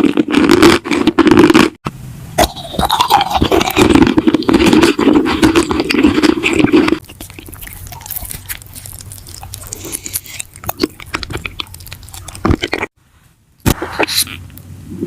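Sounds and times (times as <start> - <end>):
crisp crunching: 0.0 - 1.8, 2.9 - 13.0
close scraping and rubbing: 2.6 - 13.0.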